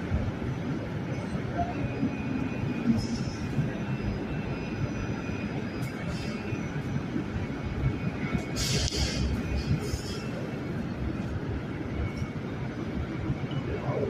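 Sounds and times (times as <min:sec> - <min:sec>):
short hiss: 0:08.6 - 0:10.2.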